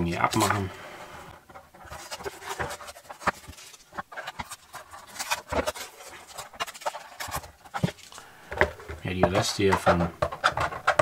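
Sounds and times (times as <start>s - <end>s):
tape peeling and crumpling: 1.8s - 8.2s.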